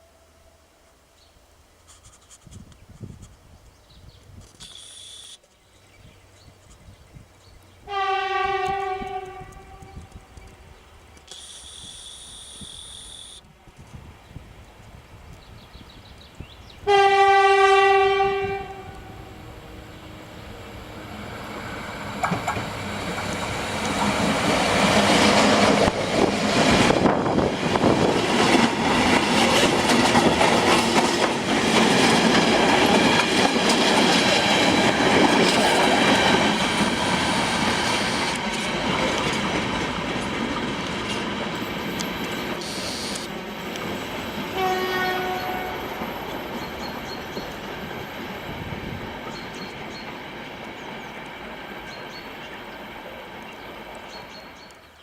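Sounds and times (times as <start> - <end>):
train rail noise: 7.6 - 55.0
train horn: 7.8 - 10.1, 16.8 - 20.3, 44.5 - 46.1.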